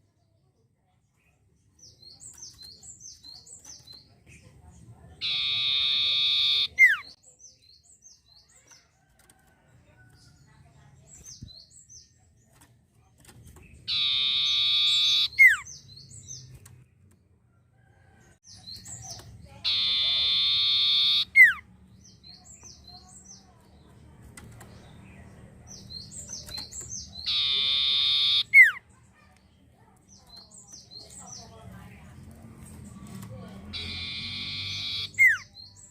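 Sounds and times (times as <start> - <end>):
bird singing buzzy notes: 5.2 - 7.2, 13.9 - 16.5, 19.1 - 21.6, 25.7 - 28.8, 33.7 - 35.9.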